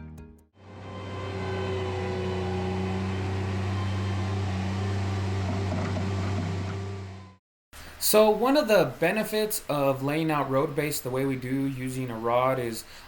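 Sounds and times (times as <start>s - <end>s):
small engine running with low hum: 0.6s - 7.4s.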